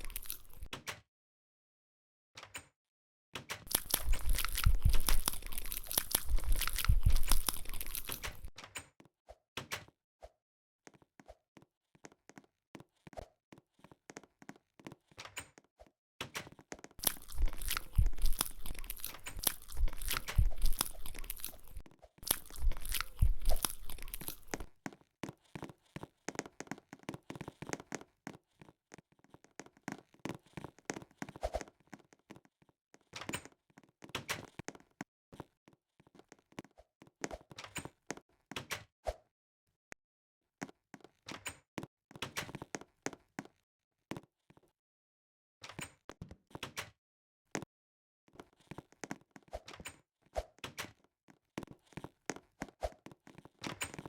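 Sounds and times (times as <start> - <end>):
crunching and crinkling: 0.0 - 0.7, 3.7 - 8.5, 17.0 - 26.0
small clicks and crackles: 0.0 - 0.7, 3.7 - 8.5, 17.0 - 28.7.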